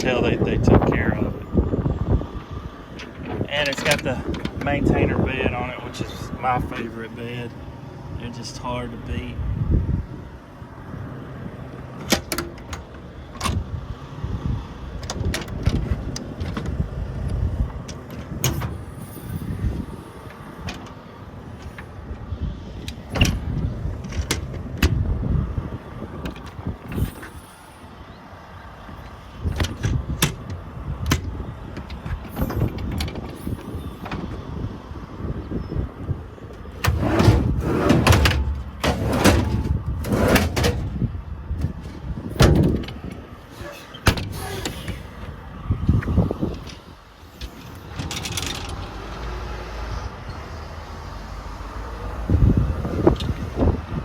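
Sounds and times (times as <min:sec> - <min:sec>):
low rumble of handling noise: 0:28.8 - 0:48.8
sharp clicks and knocks: 0:29.5 - 0:33.4.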